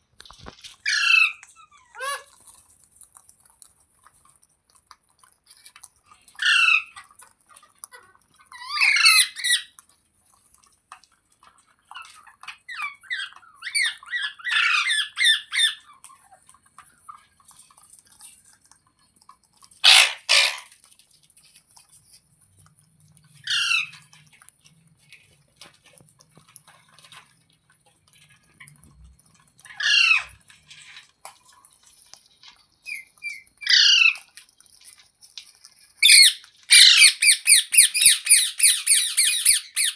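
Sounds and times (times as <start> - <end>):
parrot squawking: 0.8 - 2.3, 6.4 - 7.0, 8.5 - 9.7, 12.0 - 16.0, 19.8 - 20.8, 23.4 - 24.0, 29.7 - 31.0, 32.9 - 34.3, 36.0 - 39.9.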